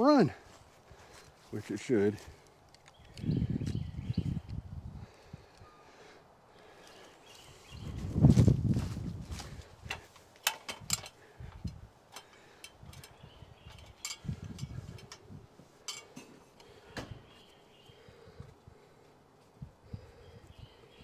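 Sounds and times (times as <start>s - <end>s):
sharp clicks and clinks: 10.4s - 16.3s.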